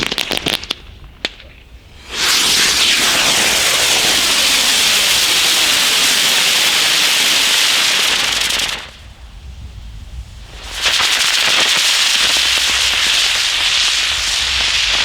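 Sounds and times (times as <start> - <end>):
firework hissing: 1.6 - 15.0.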